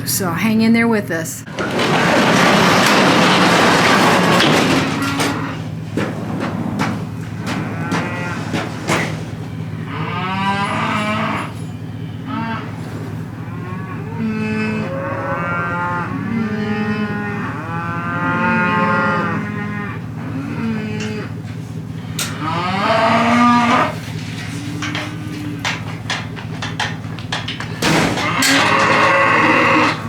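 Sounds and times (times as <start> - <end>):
cattle mooing: 1.5 - 30.0.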